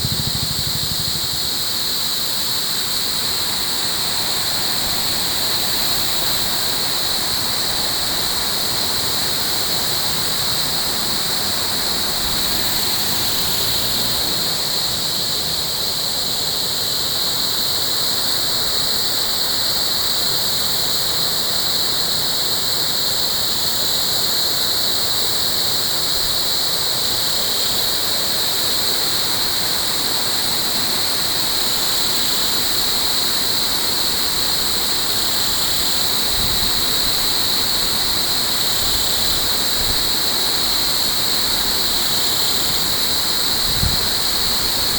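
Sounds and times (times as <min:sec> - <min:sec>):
high-pitched buzz: 0:00.0 - 0:01.5.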